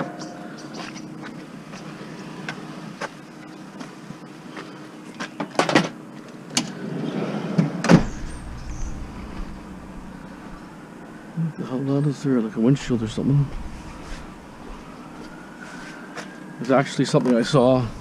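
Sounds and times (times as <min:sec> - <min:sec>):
low rumble: 0:07.9 - 0:11.6, 0:12.5 - 0:15.6, 0:17.7 - 0:18.0.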